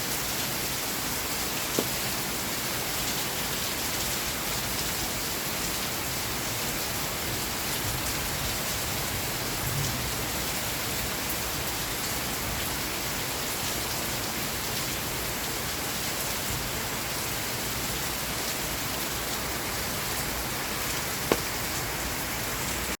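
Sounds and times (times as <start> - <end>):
rainfall: 0.0 - 23.0
sharp tap: 1.8 - 2.0, 21.3 - 21.6.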